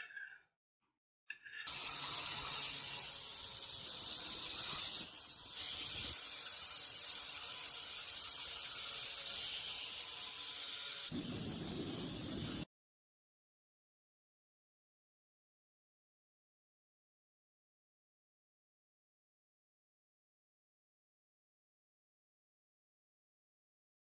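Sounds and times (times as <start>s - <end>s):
high spraying hiss: 2.4s - 7.0s, 11.1s - 12.6s.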